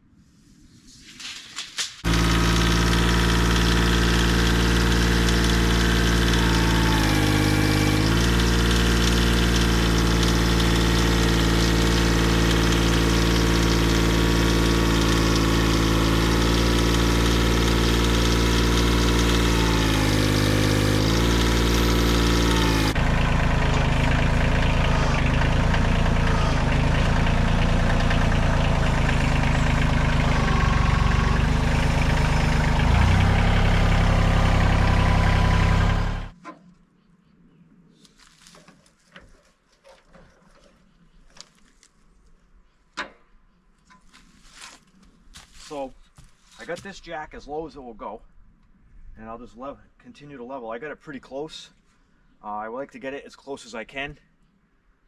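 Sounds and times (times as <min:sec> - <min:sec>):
engine running: 0:02.0 - 0:36.4
rough dull engine note: 0:02.1 - 0:36.3.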